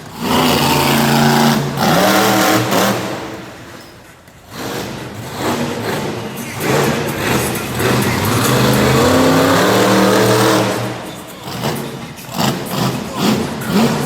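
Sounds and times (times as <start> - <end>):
large vehicle engine revving: 0.0 - 14.0.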